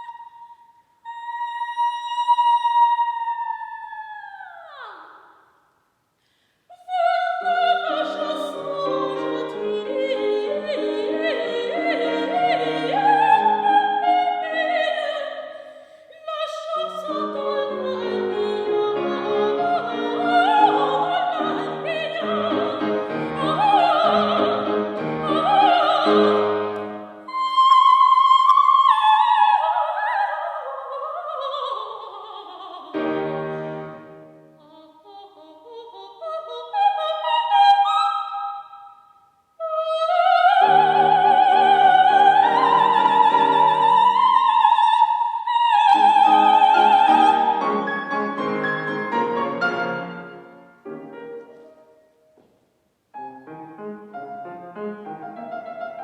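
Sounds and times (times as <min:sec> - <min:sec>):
soprano singing opera: 0:00.0 - 0:05.3, 0:06.7 - 0:33.8, 0:34.6 - 0:38.9, 0:39.6 - 0:50.3, 0:54.7 - 0:56.0
piano accompaniment: 0:17.3 - 0:27.3, 0:46.0 - 0:52.1, 0:53.2 - 0:56.0.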